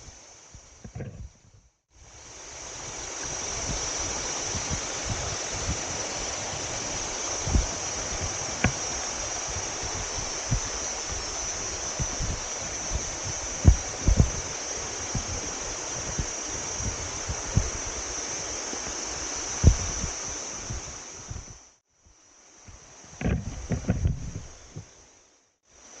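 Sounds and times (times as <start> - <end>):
low thumps on microphone: 0.6 - 1.7, 7.4 - 17.9, 19.6 - 21.6, 22.7 - 25.0
waterfall rushing over rocks: 2.3 - 20.8.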